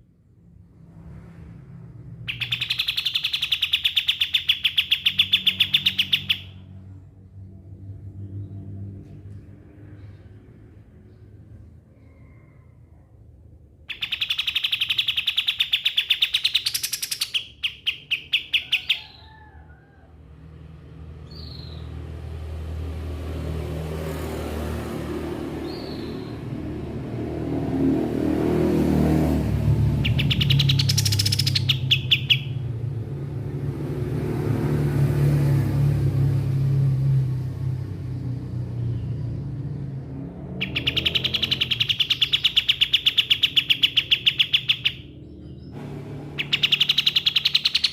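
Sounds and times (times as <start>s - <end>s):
songbird trilling: 2.3s - 6.6s, 13.9s - 19.4s, 30.0s - 32.7s, 40.6s - 45.7s, 46.4s - 47.9s.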